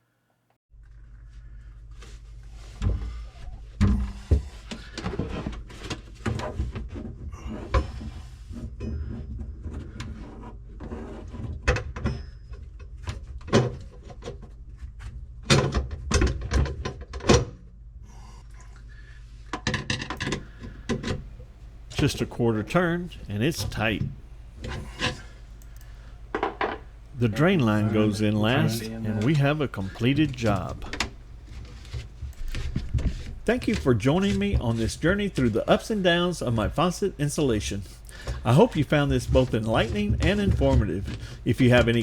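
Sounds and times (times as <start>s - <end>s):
garbage disposal clunks and scraping: 2.6s - 14.5s, 19.5s - 35.7s, 37.4s - 42.0s
steady low hum: 20.2s - 42.0s.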